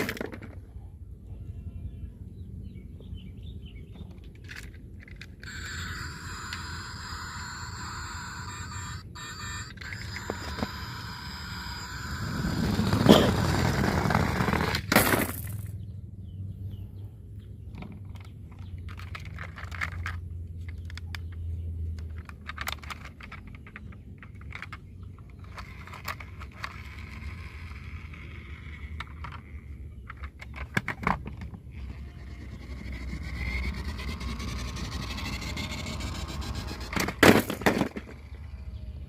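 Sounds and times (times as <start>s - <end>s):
toy cars scraping: 0.0s - 0.7s, 4.0s - 15.8s, 17.7s - 39.0s
small hard pieces rattling: 18.1s - 21.0s.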